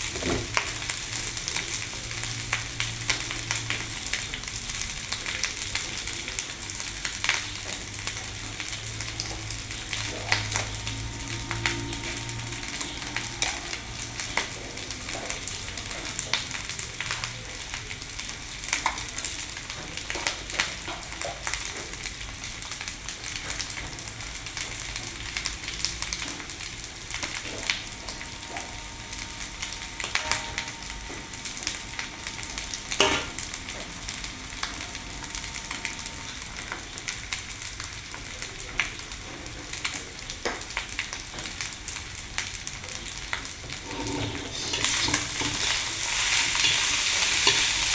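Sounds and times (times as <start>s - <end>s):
rice sizzling in hot pan: 0.0s - 47.9s
spatula clicking and scraping pan: 43.7s - 47.9s.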